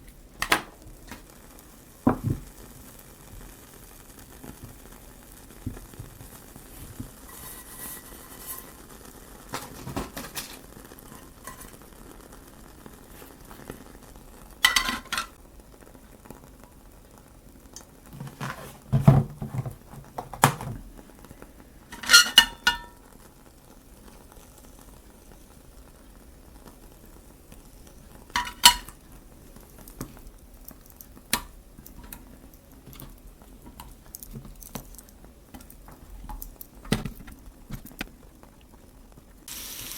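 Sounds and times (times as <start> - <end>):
potatoes frying in a pan: 0.0 - 39.9
utensil clinking against pan: 22.0 - 23.0.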